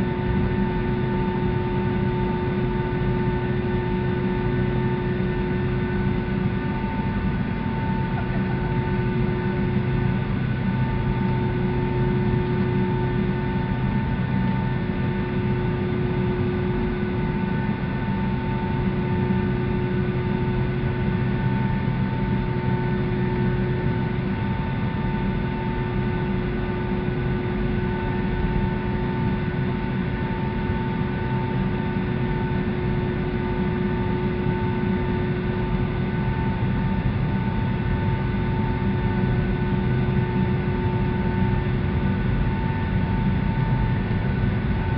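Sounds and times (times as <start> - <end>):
airliner cabin rumble: 5.2 - 15.2.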